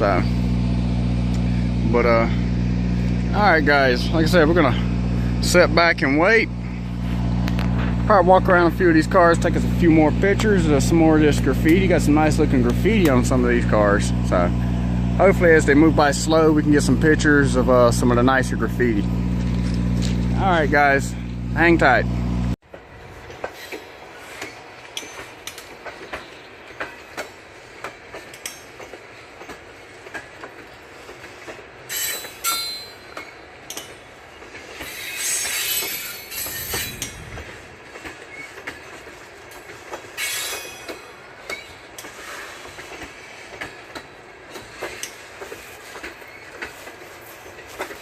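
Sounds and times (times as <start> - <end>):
wheels clicking over rail joints: 0.0 - 22.0, 22.6 - 48.0
freight train rolling: 0.0 - 48.0
high wheel squeal: 31.8 - 33.5, 34.6 - 37.5, 40.1 - 43.5.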